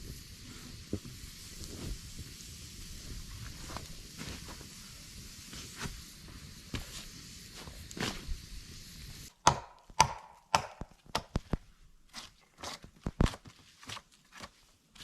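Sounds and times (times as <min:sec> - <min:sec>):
blade chopping wood: 0:09.4 - 0:11.4.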